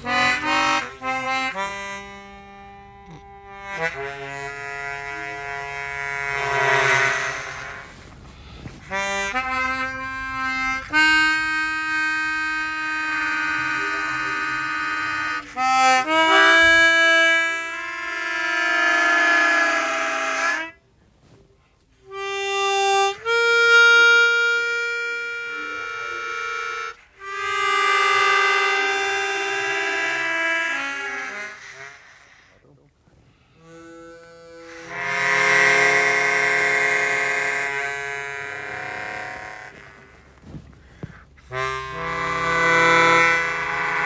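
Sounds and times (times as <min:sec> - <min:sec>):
harmonica notes with reverb: 0:00.0 - 0:20.8, 0:22.0 - 0:32.6, 0:33.5 - 0:44.0.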